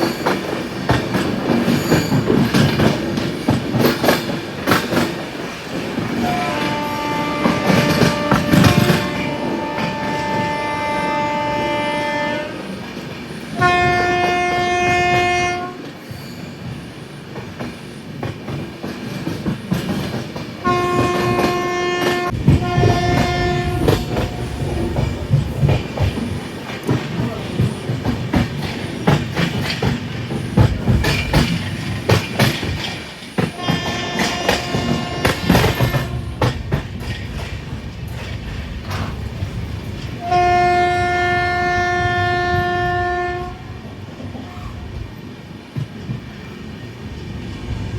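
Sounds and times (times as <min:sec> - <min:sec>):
train wheels clattering over rail joints: 0:00.0 - 0:10.6, 0:12.7 - 0:40.4
train horn blasts: 0:06.2 - 0:12.7, 0:13.6 - 0:15.9, 0:20.6 - 0:25.0, 0:33.5 - 0:36.5, 0:40.2 - 0:43.8.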